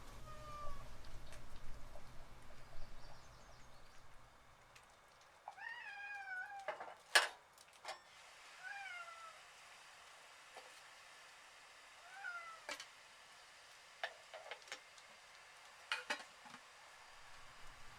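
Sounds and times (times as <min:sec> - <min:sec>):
cat meowing: 0:00.0 - 0:01.0, 0:05.5 - 0:06.8, 0:08.6 - 0:09.4, 0:12.0 - 0:12.7.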